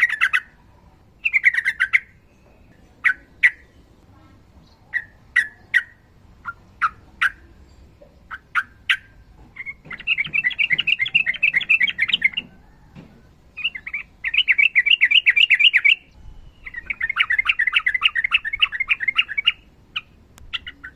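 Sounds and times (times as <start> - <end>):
bird rattling song phrases: 0.0 - 12.9, 13.5 - 20.9.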